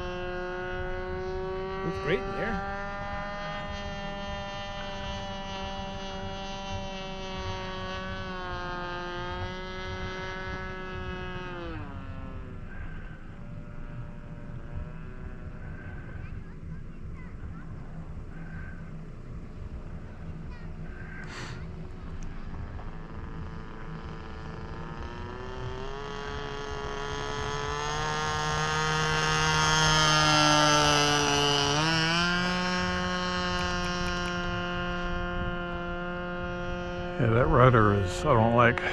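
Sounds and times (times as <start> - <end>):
model airplane engine drone: 0.0 - 38.9.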